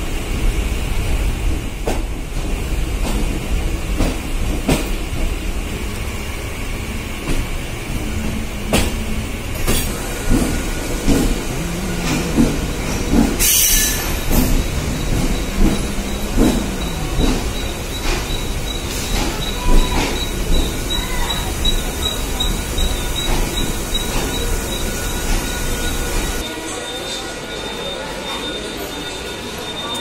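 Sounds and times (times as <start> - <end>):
train rumbling: 0.0 - 30.0
loud hiss: 12.3 - 14.6.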